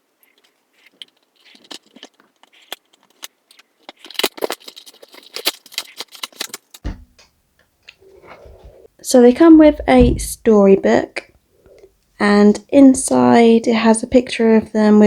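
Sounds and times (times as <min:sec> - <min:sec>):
packaging crinkling and rustling: 0:00.0 - 0:06.9
packaging clicks: 0:00.2 - 0:06.8
dull thump: 0:06.8 - 0:07.2, 0:09.6 - 0:10.6.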